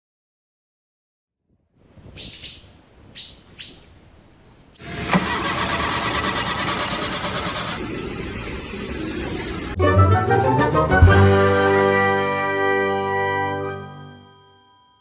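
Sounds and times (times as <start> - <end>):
bird chirps: 2.0 - 4.8
petrol engine starting and running: 4.8 - 11.5.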